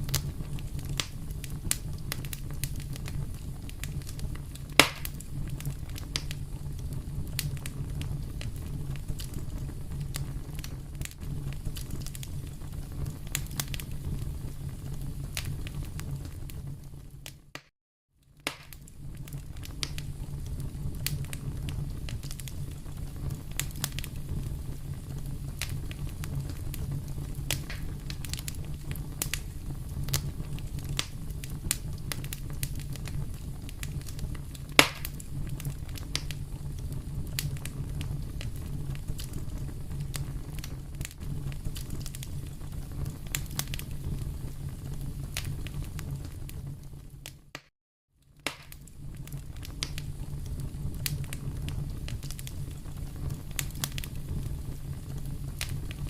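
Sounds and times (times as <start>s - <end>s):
fire crackling and popping: 0.0s - 56.0s.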